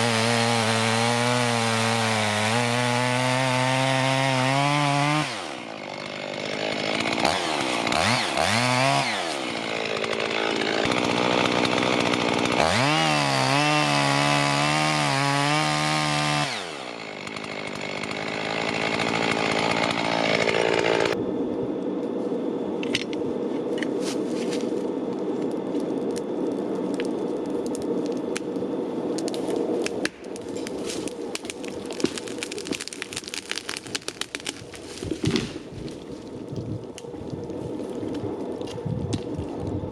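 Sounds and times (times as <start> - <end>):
chainsaw cutting wood: 0.0 - 21.2, 29.2 - 36.1
sharp clicks and cracks: 29.1 - 35.5.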